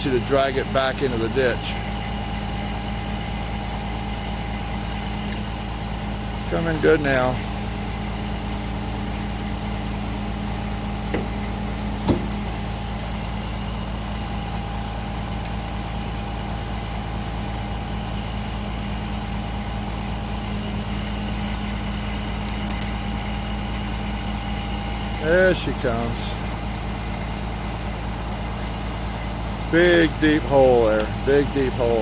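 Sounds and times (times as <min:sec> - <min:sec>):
diesel truck engine running: 0:00.0 - 0:32.0.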